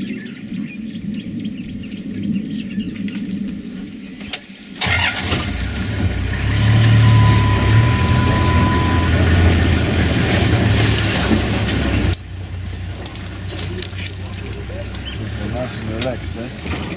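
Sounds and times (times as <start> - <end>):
birds chirping: 0.0 - 5.2, 6.6 - 16.6
vehicle engine starting and running: 4.3 - 16.9
low hum: 4.8 - 16.2.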